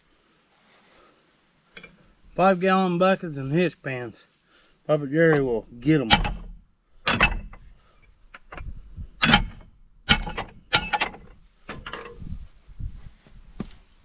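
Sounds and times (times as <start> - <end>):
metal clanks and knocks: 1.7 - 2.4, 5.3 - 12.4.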